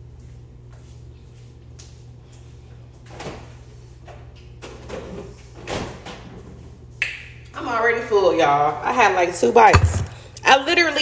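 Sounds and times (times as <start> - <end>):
steady low hum: 9.4 - 10.9.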